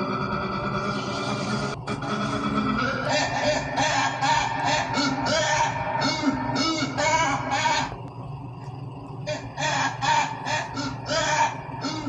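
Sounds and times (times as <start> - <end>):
held pitched tone: 0.0 - 12.0
dinosaur roar: 0.7 - 8.0
harsh honking cries: 1.9 - 8.0, 9.3 - 12.0.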